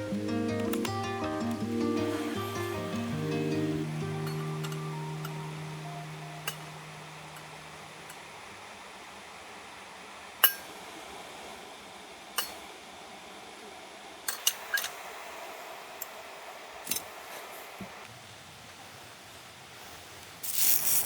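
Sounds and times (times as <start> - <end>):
steady low hiss: 0.0 - 21.0.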